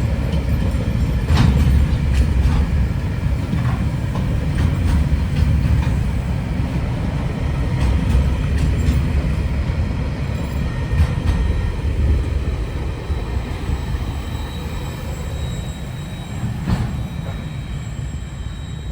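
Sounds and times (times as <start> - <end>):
freight train rumbling on rails: 0.0 - 18.9
faint wheel squeal: 13.4 - 18.9.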